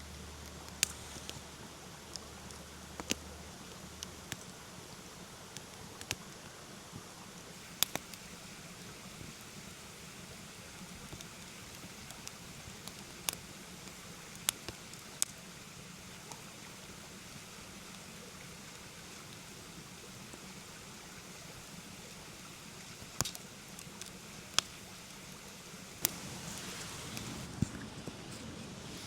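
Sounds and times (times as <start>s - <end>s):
mountain stream rushing: 0.0s - 29.0s
campfire wood popping: 0.4s - 4.7s, 5.4s - 6.3s, 7.6s - 20.5s, 21.4s - 28.2s.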